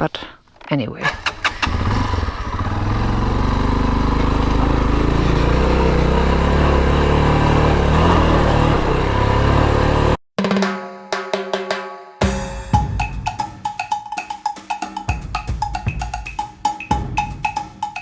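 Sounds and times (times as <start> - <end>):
motorcycle engine running: 1.1 - 10.2
drum beat: 10.4 - 18.0.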